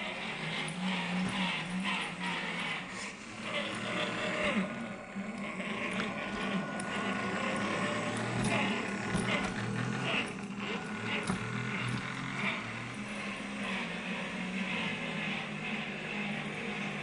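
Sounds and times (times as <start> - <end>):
electric motor and gearbox whine: 0.0 - 17.0.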